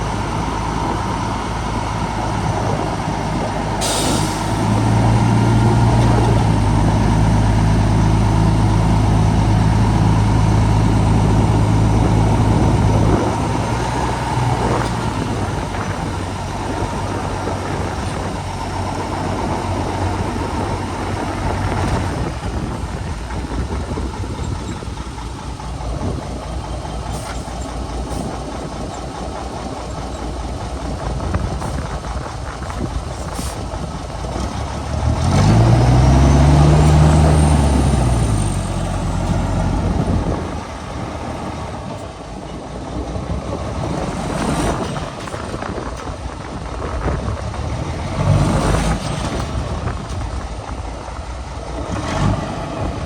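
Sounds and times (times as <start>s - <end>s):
bulldozer diesel engine running: 0.0s - 53.0s.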